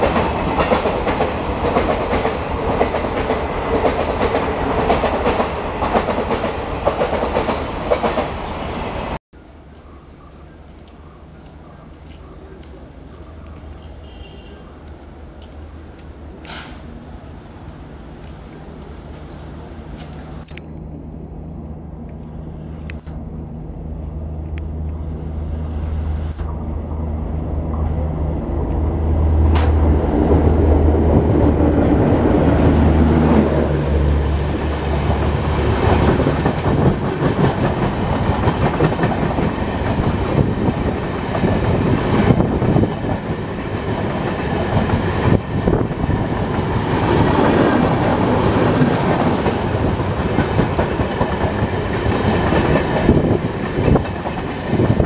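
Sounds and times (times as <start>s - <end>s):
train wheels clickety-clack: 0.0s - 8.5s, 34.9s - 55.0s
locomotive engine drone: 14.7s - 42.8s.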